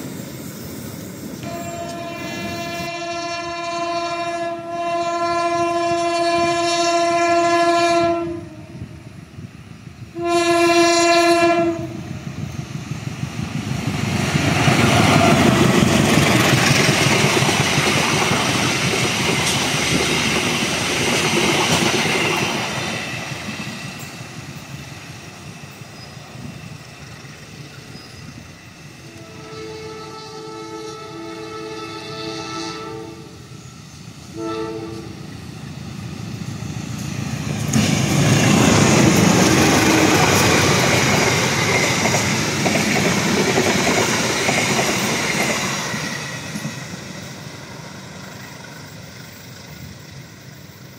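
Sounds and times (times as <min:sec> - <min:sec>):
train passing with wheel clatter: 0:00.0 - 0:50.9
locomotive air horn blasts: 0:01.4 - 0:08.8, 0:10.2 - 0:12.0, 0:29.0 - 0:33.4, 0:34.3 - 0:35.2.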